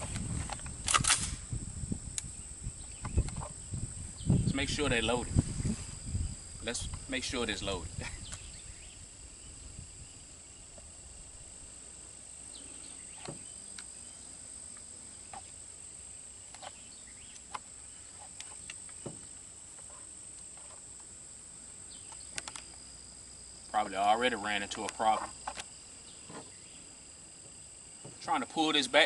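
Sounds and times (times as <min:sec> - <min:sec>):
crickets chirring: 0:00.0 - 0:29.0
rifle handling clicks: 0:00.1 - 0:01.4, 0:22.1 - 0:22.8.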